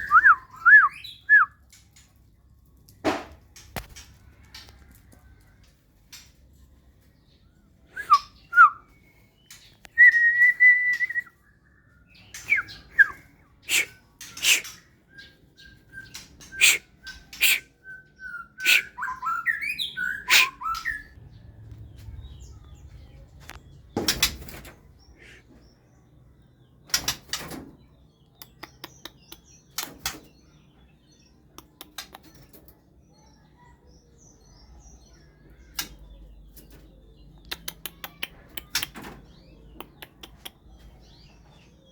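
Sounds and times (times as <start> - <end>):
songbird chirping and whistling: 0.0 - 1.6, 7.8 - 23.9
sharp clicks and taps: 28.4 - 30.2, 31.6 - 32.4, 37.4 - 39.1, 39.8 - 40.7.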